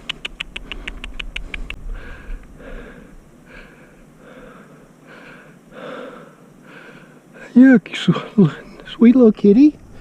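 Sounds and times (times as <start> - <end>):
sharp clicks: 0.0 - 1.8
man breathing hard: 0.6 - 7.6.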